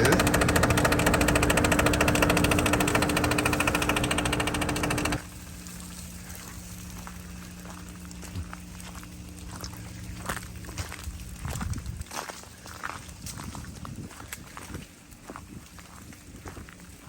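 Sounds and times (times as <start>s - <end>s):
rapid mechanical rattle: 0.0s - 5.2s
steady low hum: 0.0s - 5.2s.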